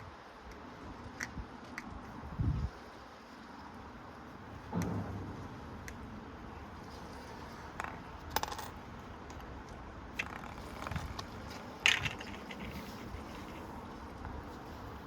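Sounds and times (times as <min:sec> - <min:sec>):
low steady background noise: 0:00.0 - 0:15.0
coin clinking in washing machine drum: 0:08.3 - 0:08.7.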